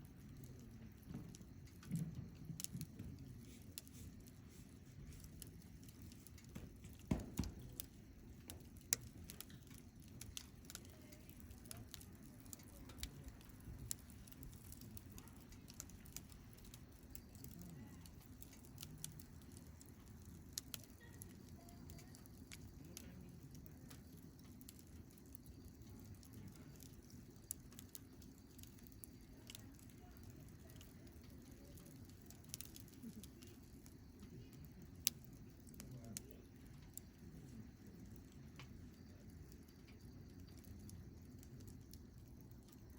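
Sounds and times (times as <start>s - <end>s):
campfire crackling: 0.0s - 42.9s
sharp fire pops: 0.3s - 42.9s.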